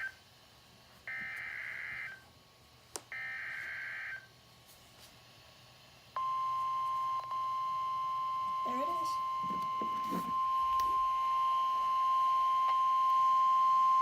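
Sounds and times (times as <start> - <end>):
steady warning alarm tone: 0.0 - 0.2, 1.1 - 2.3, 3.1 - 4.3, 6.2 - 14.0.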